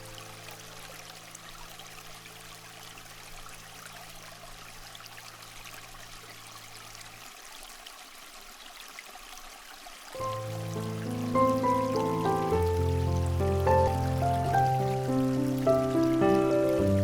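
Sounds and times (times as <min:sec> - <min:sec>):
water trickling: 0:00.0 - 0:17.0.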